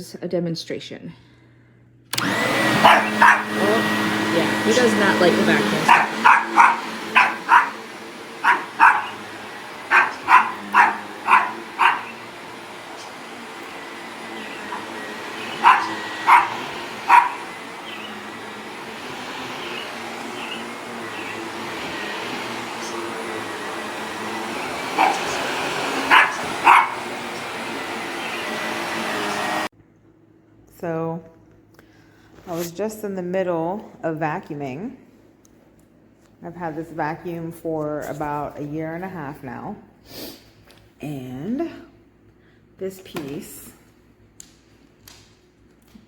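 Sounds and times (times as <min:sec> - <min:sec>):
vacuum cleaner running: 0:02.1 - 0:29.7, 0:36.5 - 0:39.8
dog barking: 0:02.7 - 0:03.8, 0:05.8 - 0:13.0, 0:14.5 - 0:17.7, 0:24.9 - 0:27.4.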